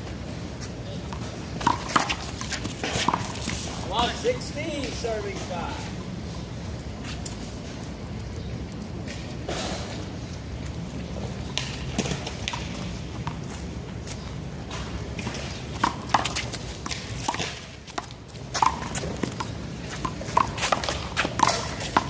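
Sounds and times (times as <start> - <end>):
ball smacking off wall and ground: 14.7 - 19.4.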